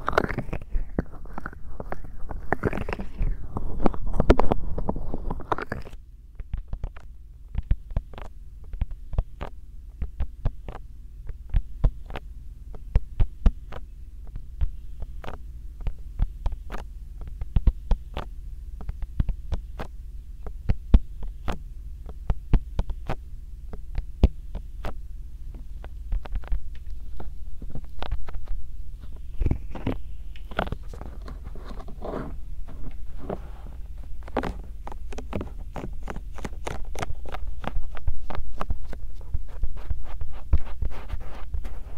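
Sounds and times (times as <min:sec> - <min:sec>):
hands rubbing microphone: 0:00.0 - 0:07.0, 0:25.6 - 0:41.9
steady low hum: 0:00.0 - 0:41.9.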